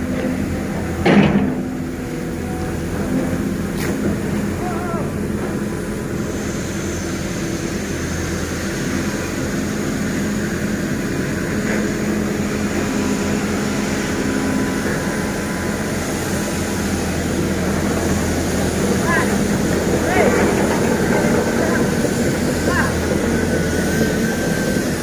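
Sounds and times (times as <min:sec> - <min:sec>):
diesel engine droning: 0:00.0 - 0:25.0.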